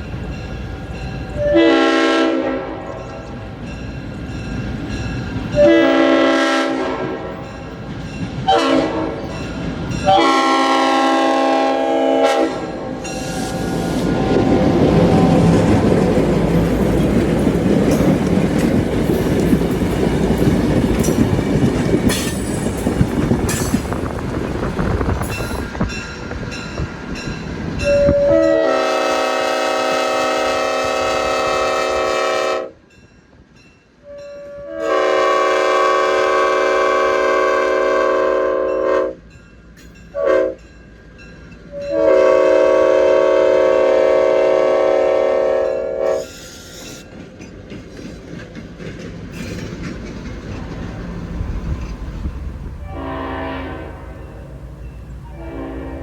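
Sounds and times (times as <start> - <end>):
train rumbling by: 0.0 - 56.0
train horn blasts: 1.4 - 3.3, 5.5 - 7.6, 8.4 - 15.7, 27.8 - 32.8, 34.0 - 39.2, 40.1 - 40.7, 41.7 - 47.0, 52.8 - 56.0.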